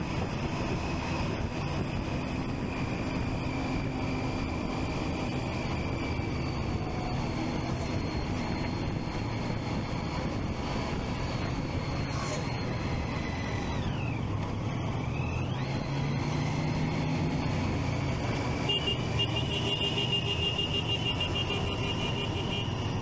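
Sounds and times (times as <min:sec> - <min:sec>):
road and wind noise: 0:00.0 - 0:23.0
motorcycle engine running: 0:12.6 - 0:23.0.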